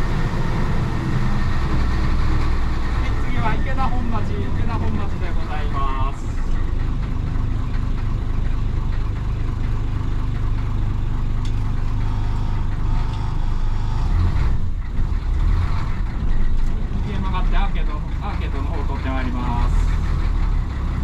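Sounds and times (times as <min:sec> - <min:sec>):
diesel bus engine droning: 0:00.0 - 0:21.0.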